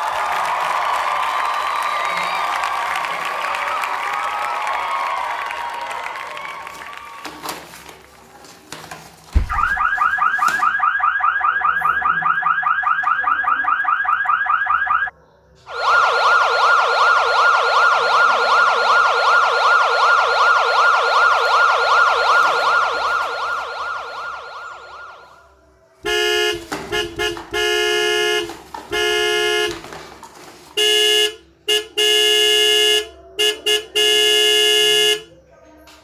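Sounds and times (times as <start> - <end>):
electronic siren warbling: 9.5 - 15.1, 15.7 - 25.5.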